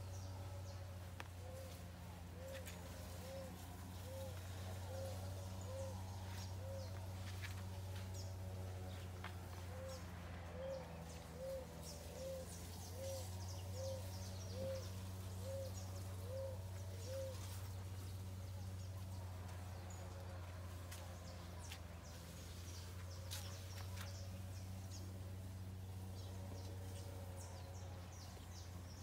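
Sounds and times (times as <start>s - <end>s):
bird hooting: 1.4s - 7.0s, 9.7s - 17.6s.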